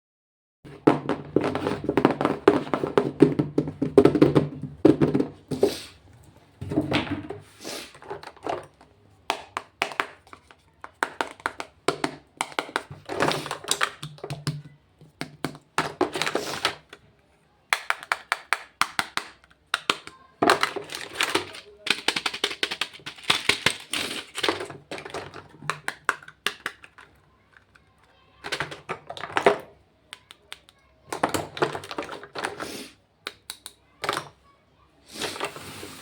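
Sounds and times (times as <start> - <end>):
taps and clicks on plastic cases: 8.6 - 17.0, 17.7 - 23.8, 24.4 - 32.6.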